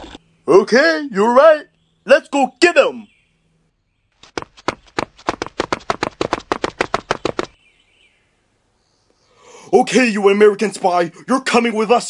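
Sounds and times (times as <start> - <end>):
rapid sharp taps: 4.2 - 7.6.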